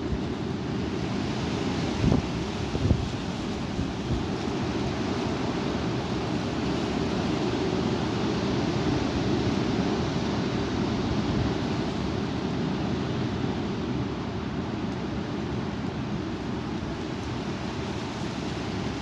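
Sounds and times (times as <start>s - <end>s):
strong wind blowing: 0.0s - 19.0s
wind gusts rumbling on microphone: 0.0s - 19.0s.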